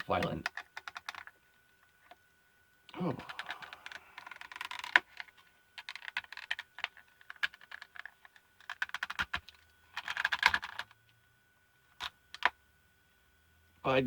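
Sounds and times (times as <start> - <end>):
plastic case clicking and creaking: 0.0 - 1.4, 3.2 - 11.0.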